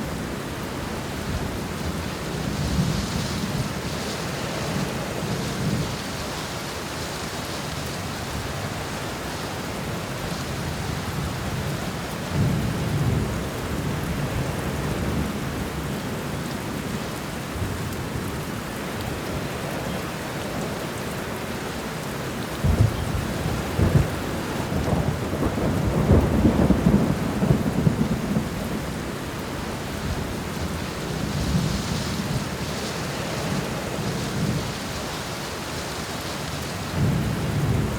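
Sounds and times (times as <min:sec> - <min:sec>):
heavy rain: 0:00.0 - 0:37.9
thunder rumbling: 0:22.6 - 0:29.1, 0:36.9 - 0:37.9.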